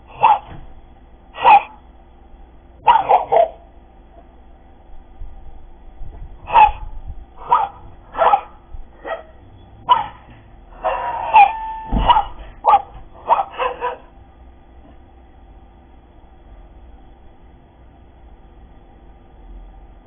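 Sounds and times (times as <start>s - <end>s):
dog barking sharply: 0.1s - 0.6s, 1.4s - 1.8s, 2.8s - 3.6s, 6.5s - 14.1s.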